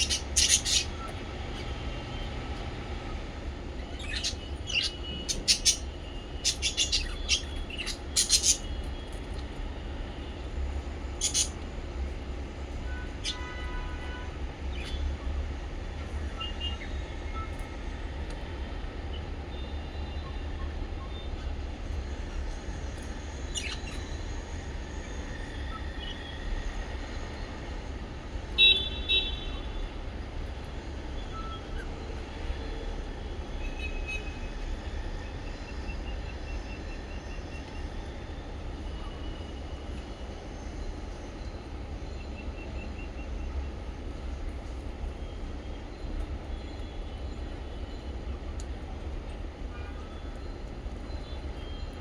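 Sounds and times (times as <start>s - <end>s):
parrots chirping: 0.0s - 1.7s, 3.8s - 8.8s, 11.2s - 11.6s.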